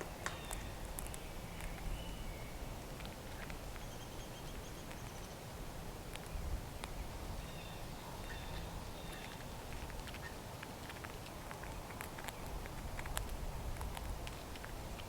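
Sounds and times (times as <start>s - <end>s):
low wind rumble: 11.7s - 15.0s.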